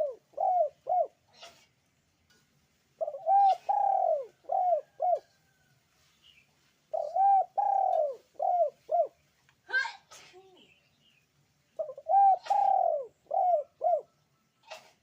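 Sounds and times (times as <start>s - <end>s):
dove cooing: 0.0s - 1.6s, 3.0s - 5.3s, 6.9s - 9.2s, 11.8s - 14.9s.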